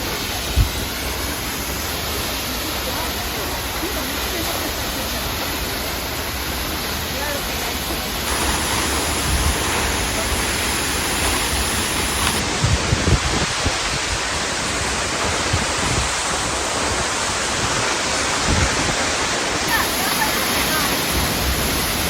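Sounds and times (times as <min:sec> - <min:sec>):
waterfall pouring: 0:08.0 - 0:12.5, 0:14.6 - 0:22.0.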